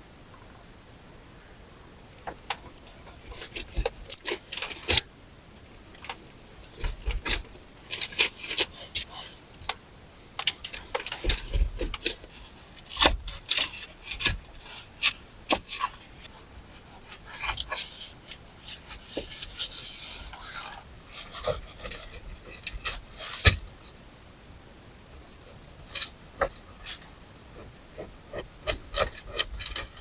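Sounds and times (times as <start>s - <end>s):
scraping and rubbing wood: 2.2s - 5.1s, 6.0s - 9.5s, 10.3s - 23.9s, 25.2s - 30.0s
sharp clicks and knocks: 27.6s - 30.0s.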